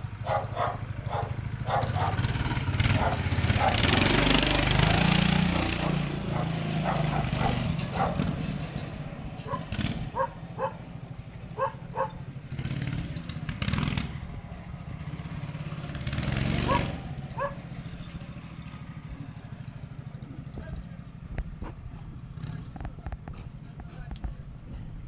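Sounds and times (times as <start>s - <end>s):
motorcycle engine idling: 0.0s - 3.8s, 9.0s - 25.0s.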